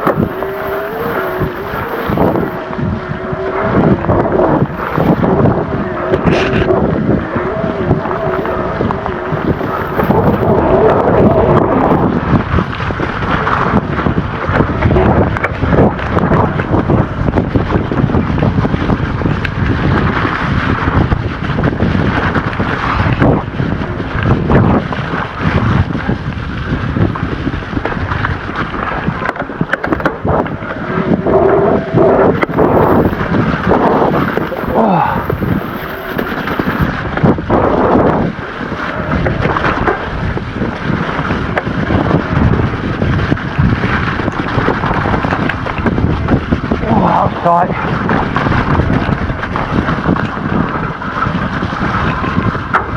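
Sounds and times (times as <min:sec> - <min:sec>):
wind rushing over microphone: 0:00.0 - 0:52.9
bike rattling and knocking: 0:11.4 - 0:31.1, 0:32.0 - 0:52.9.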